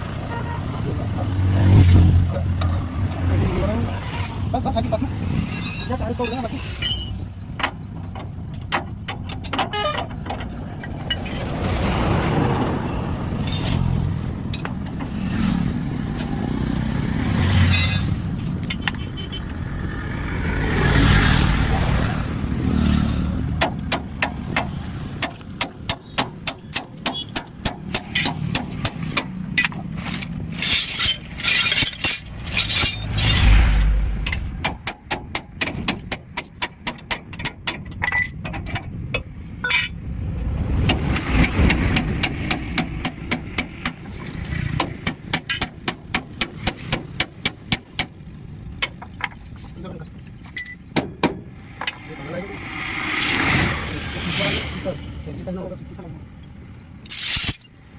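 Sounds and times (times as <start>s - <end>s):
vehicle low rumble: 0.0s - 25.9s, 26.8s - 36.4s.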